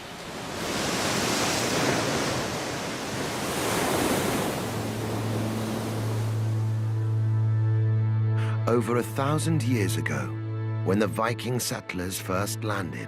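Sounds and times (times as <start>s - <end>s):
sea waves breaking: 0.0s - 7.0s
low musical drone: 4.7s - 13.0s.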